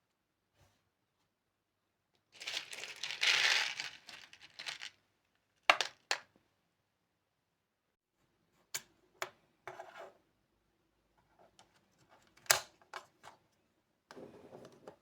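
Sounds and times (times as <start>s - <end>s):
crinkling and rustling: 2.4s - 5.0s.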